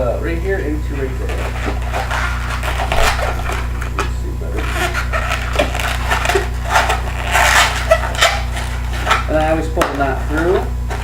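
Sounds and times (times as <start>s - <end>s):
low electrical hum: 0.0s - 11.0s
balloon rubbing and squeaking: 0.8s - 9.4s.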